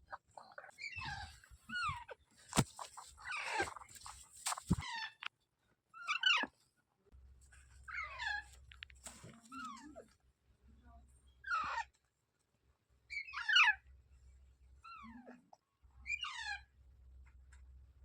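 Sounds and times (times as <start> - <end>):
parakeets calling harshly: 0.4 - 5.2.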